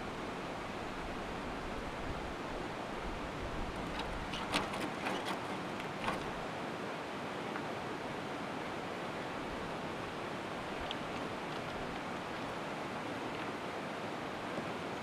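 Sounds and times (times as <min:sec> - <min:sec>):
light clicks and knocks: 0:03.6 - 0:06.5.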